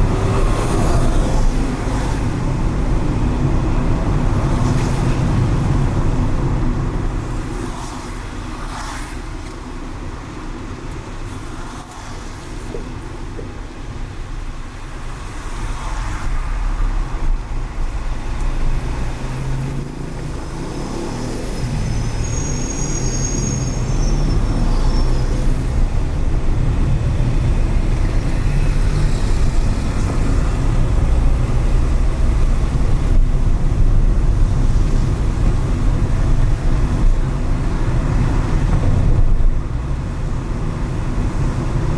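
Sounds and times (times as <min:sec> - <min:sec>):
car engine and tyres rumbling: 0:00.0 - 0:41.9.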